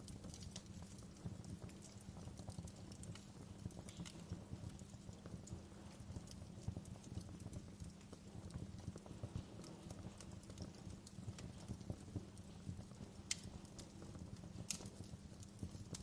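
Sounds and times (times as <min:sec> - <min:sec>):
fire rumbling and crackling: 0:00.0 - 0:16.0
sharp fire pops: 0:12.9 - 0:15.2.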